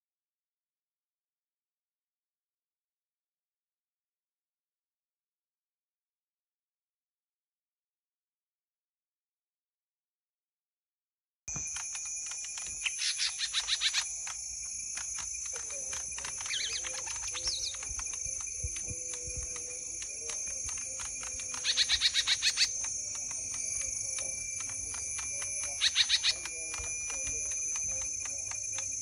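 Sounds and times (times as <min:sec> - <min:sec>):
constant high-pitched hiss: 0:11.5 - 0:29.0
songbird chip notes: 0:11.5 - 0:29.0.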